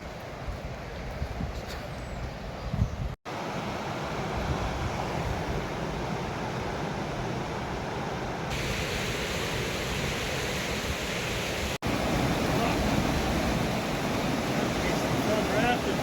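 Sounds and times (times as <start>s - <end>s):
river rapids rushing: 3.3s - 16.0s.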